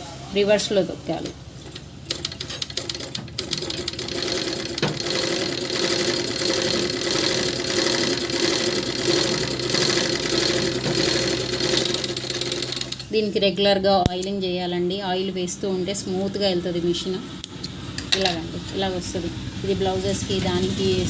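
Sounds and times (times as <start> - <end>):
overlock sewing machine stitching: 1.6 - 13.1.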